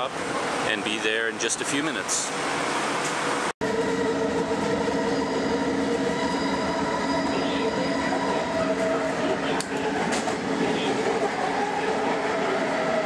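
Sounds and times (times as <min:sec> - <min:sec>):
train rumble and rush: 0:00.0 - 0:13.0.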